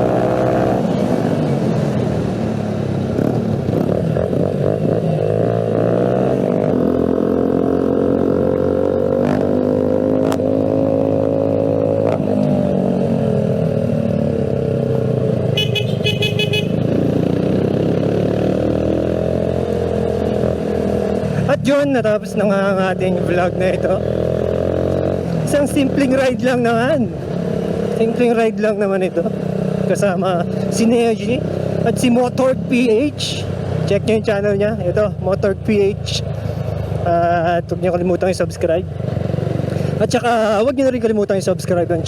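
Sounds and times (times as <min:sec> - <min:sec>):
motorcycle engine at speed: 0:00.0 - 0:28.4, 0:29.0 - 0:40.7
horn short beeps: 0:15.6 - 0:16.8.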